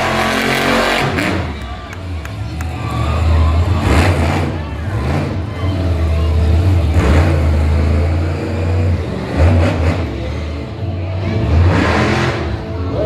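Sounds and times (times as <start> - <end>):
monster truck engine revving: 0.0 - 13.0.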